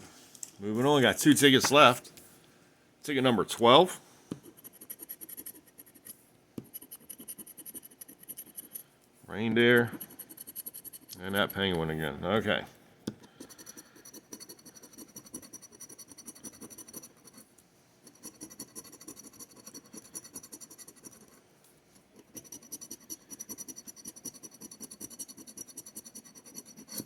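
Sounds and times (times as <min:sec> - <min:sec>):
lottery ticket being scratched: 0:04.5 - 0:08.8, 0:09.4 - 0:12.2, 0:13.2 - 0:17.5, 0:18.1 - 0:21.4.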